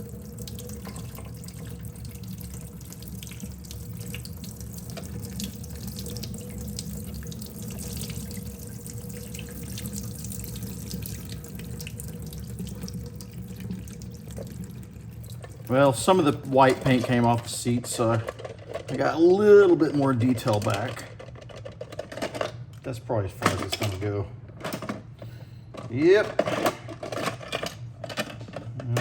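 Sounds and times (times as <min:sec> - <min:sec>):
tap water running into sink: 0:00.0 - 0:18.2.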